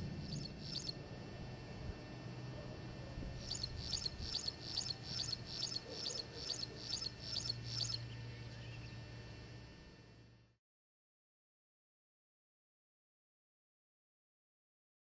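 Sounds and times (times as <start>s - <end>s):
low steady hum: 0.0s - 10.6s
bird chirping: 0.2s - 1.0s, 3.4s - 9.0s.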